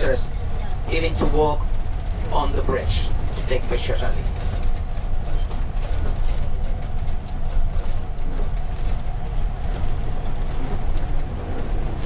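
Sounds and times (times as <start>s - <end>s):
road noise: 0.0s - 12.0s
vehicle engine rumble: 0.0s - 12.0s.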